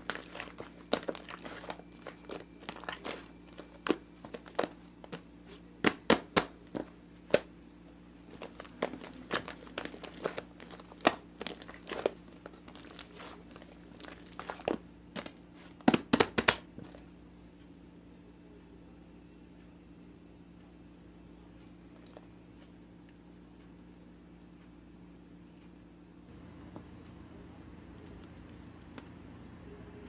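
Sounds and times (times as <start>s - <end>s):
plastic or paper crinkling: 0.0s - 5.2s, 8.3s - 16.9s.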